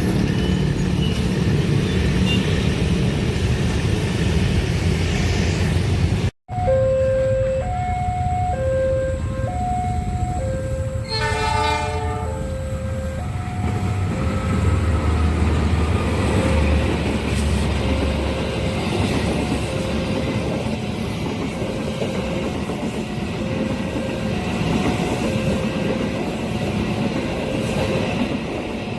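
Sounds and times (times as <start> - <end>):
train wheels rumbling on rails: 0.0 - 6.3, 9.5 - 28.9
level-crossing alarm two tones: 6.5 - 17.1
train horn: 10.9 - 14.8.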